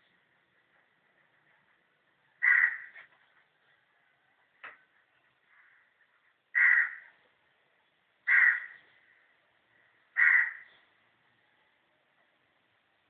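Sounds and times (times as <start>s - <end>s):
harsh bird calls: 8.3s - 10.9s.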